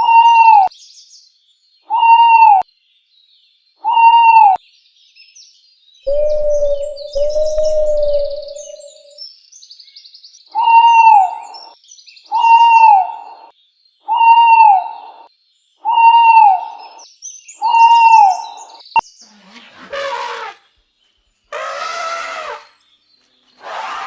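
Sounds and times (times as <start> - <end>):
small birds chirping faintly: 4.6 - 14.1
animal hooting call: 6.1 - 9.1, 12.4 - 13.4, 14.1 - 15.1, 15.9 - 16.7, 17.6 - 18.4, 19.3 - 20.6, 21.5 - 22.8, 23.6 - 24.0.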